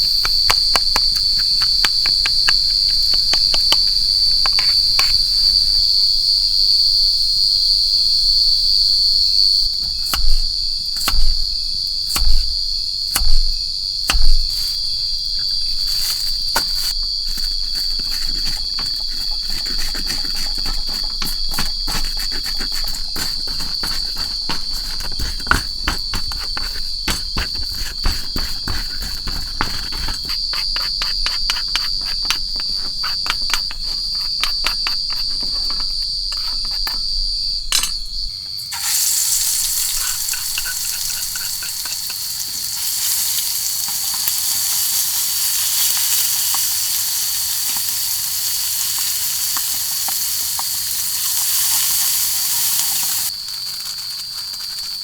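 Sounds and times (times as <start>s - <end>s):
crickets trilling: 0.0s - 55.0s
food sizzling: 38.2s - 55.0s.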